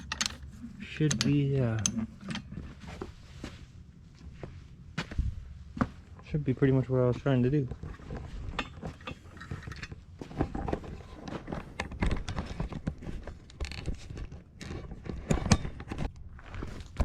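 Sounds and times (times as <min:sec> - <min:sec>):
handling clicks and knocks: 0:00.0 - 0:03.1, 0:07.6 - 0:17.0
footsteps: 0:02.5 - 0:11.8.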